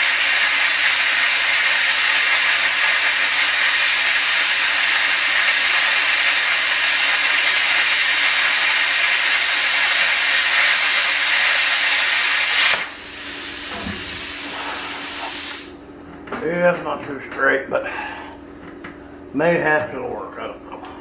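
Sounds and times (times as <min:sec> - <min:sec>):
plasma cutter hissing: 0:00.0 - 0:15.8.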